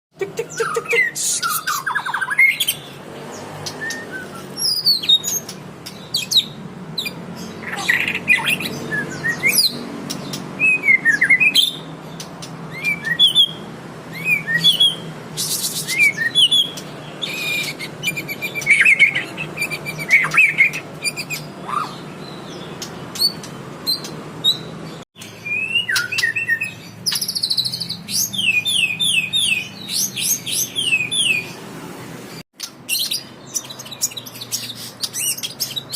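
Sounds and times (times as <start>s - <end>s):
bird singing whistled song: 0.5s - 2.9s, 3.6s - 11.9s, 12.7s - 21.9s, 23.1s - 31.5s.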